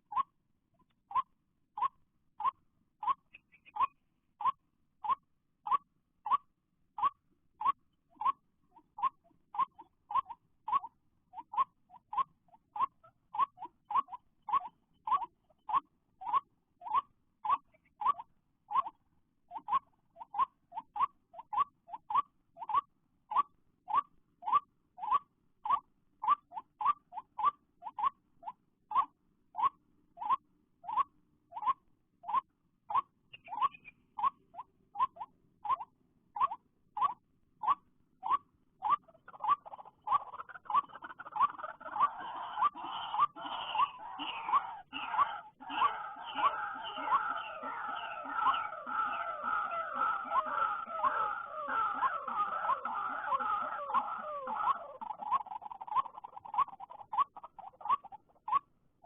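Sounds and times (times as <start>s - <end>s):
harsh croaking chatter: 9.0s - 58.6s
waterhen hoarse rising calls: 39.0s - 57.3s.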